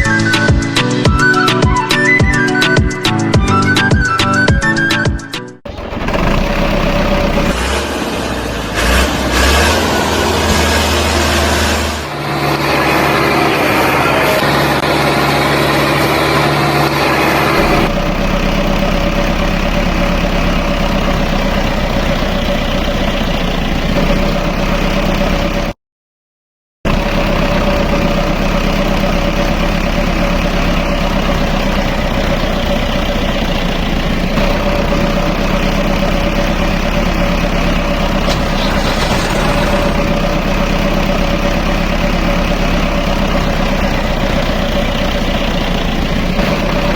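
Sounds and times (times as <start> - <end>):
tractor engine idling: 5.7 - 8.8, 10.0 - 25.7, 26.9 - 46.9.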